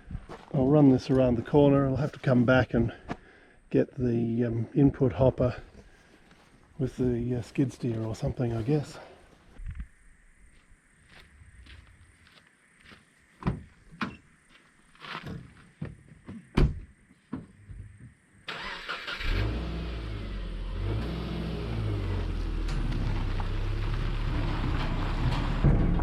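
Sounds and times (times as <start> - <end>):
footsteps: 0.0 - 3.3, 5.5 - 17.8
car engine starting and running: 18.5 - 26.0.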